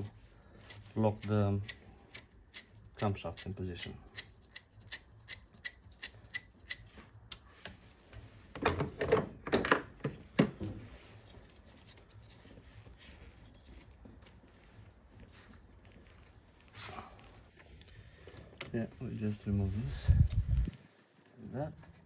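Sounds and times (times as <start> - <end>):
sharp tool clicks: 0.7 - 7.4.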